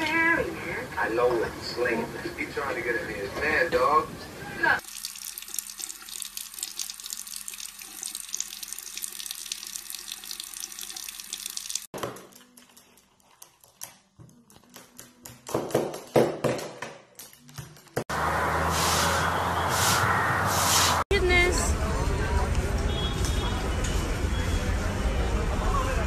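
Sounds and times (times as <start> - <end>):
tap water running into sink: 4.8 - 11.9.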